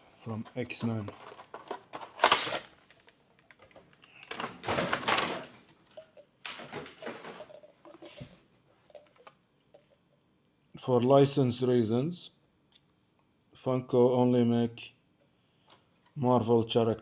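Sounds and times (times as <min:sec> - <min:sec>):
packaging rustling: 0:00.2 - 0:08.4.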